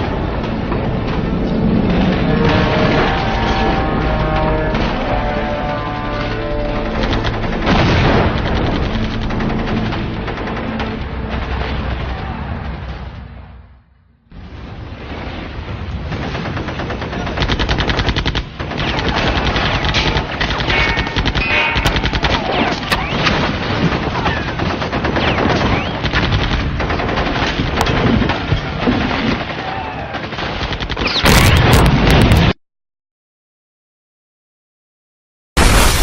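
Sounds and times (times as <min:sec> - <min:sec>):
rapid automatic gunfire: 0:06.7 - 0:12.3, 0:15.9 - 0:31.9.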